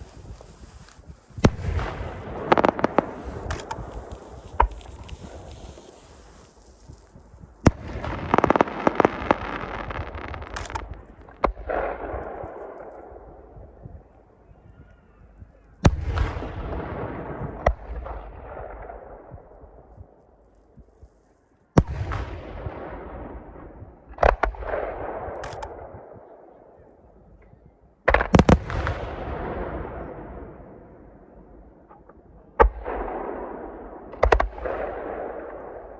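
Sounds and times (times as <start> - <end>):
crackling fireworks pops: 0.0 - 14.4, 15.4 - 22.4, 23.7 - 26.3, 27.4 - 29.1, 31.8 - 35.9
fireworks bangs with rumbling echo: 0.0 - 14.4, 15.4 - 21.2, 21.8 - 26.4, 28.0 - 35.9.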